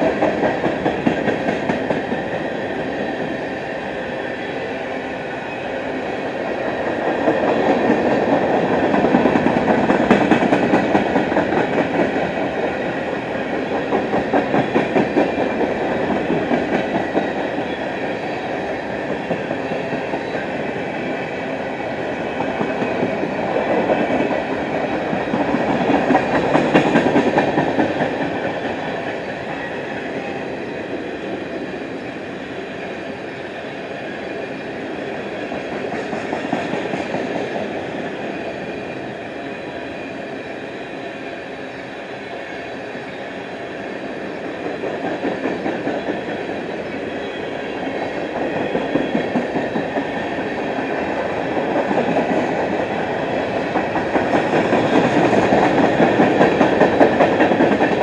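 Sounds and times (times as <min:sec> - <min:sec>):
wheels clicking over rail joints: 0:22.4 - 0:29.1.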